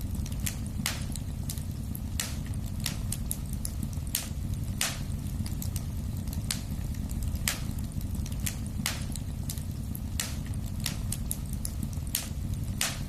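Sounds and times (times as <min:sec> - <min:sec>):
fire crackles and pops: 0:00.0 - 0:13.0
low rumble of flames: 0:00.0 - 0:13.0.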